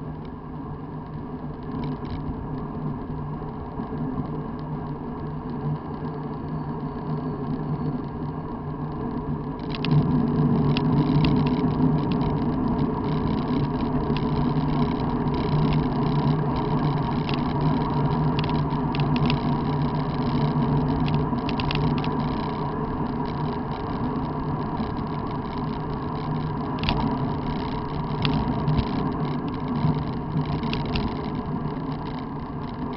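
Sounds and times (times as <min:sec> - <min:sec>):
vehicle driving on road: 0:00.0 - 0:32.9
clicks and rattles: 0:09.6 - 0:32.9.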